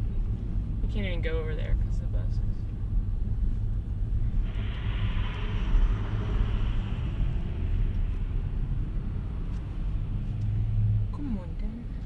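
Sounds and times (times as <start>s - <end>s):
truck engine rumble: 0.0s - 12.0s
hiss: 4.4s - 9.0s.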